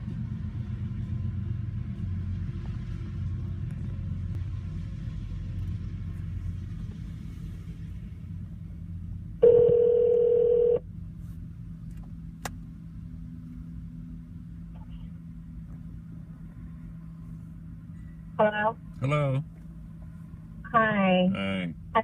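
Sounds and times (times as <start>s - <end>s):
car cabin rumble: 5.5s - 21.3s
phone tone: 9.4s - 10.8s.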